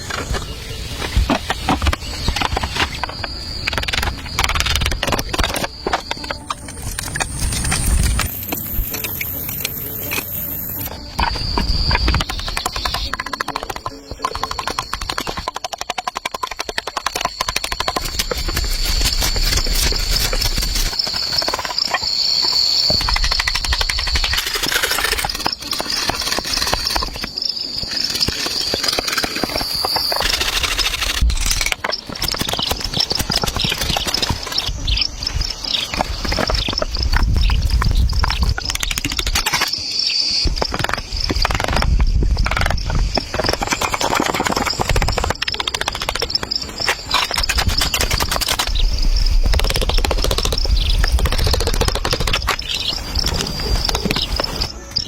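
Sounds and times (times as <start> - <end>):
clicks and rustles: 0.0 - 34.8
insects chirring: 0.0 - 55.0.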